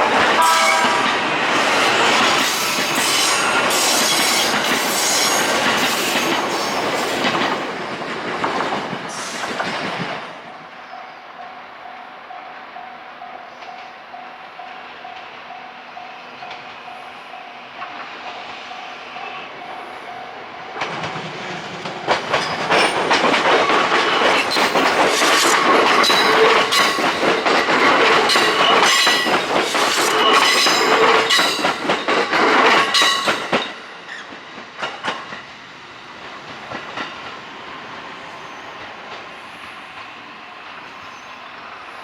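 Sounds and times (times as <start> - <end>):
electric train running past: 0.0 - 42.0
wheels clattering over rail joints: 20.7 - 33.7.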